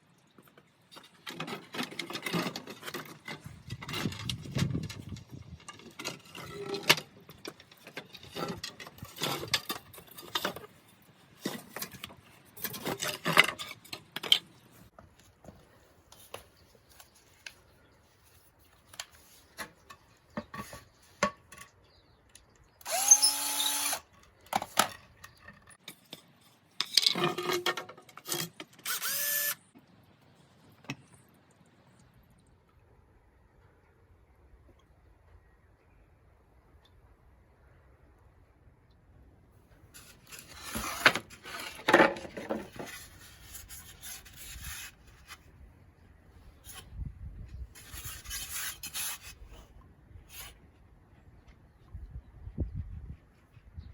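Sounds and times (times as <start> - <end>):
handling knocks of wood and tools: 0.4 - 17.8, 18.5 - 23.1, 40.0 - 44.0
power drill spinning up: 22.8 - 24.1, 28.9 - 29.6.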